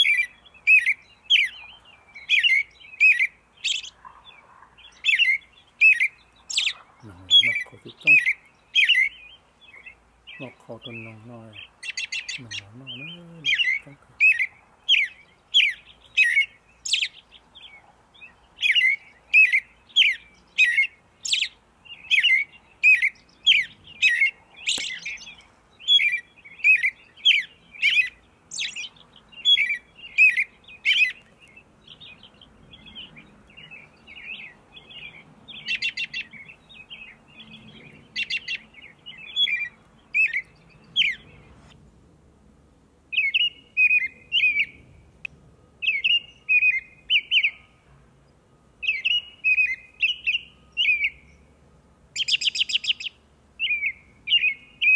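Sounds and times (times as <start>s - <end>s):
small birds chirping: 0.0s - 41.9s, 43.0s - 54.9s.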